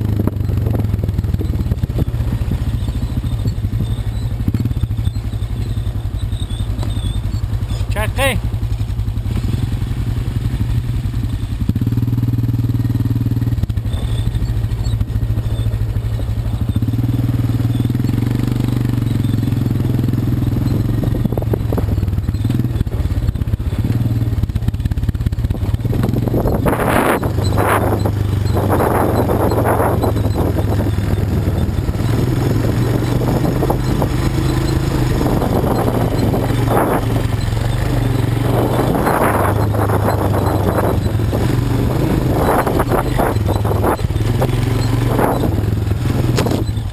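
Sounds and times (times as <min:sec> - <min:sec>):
quad bike engine revving: 0:00.0 - 0:46.9.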